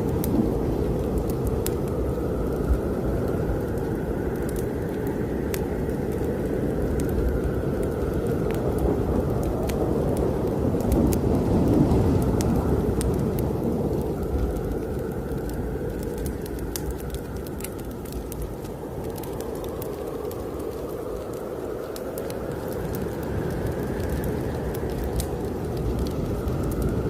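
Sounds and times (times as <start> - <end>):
strong blizzard wind: 0.0 - 27.0
wood fire crackling and popping: 0.0 - 27.0.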